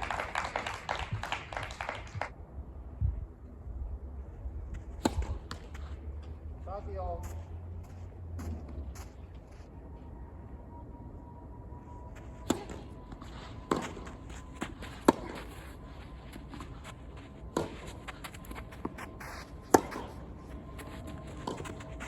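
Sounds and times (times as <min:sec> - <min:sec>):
tennis ball struck by rackets: 0:12.4 - 0:12.8, 0:13.7 - 0:15.6, 0:18.8 - 0:20.2
tennis ball bouncing on court: 0:13.7 - 0:15.5, 0:17.5 - 0:20.2.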